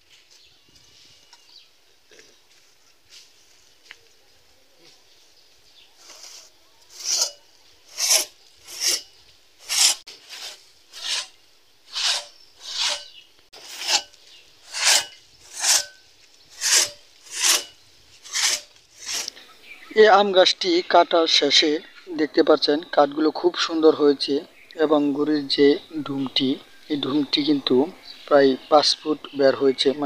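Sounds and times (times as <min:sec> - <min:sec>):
hand saw cutting wood: 0:06.0 - 0:19.3.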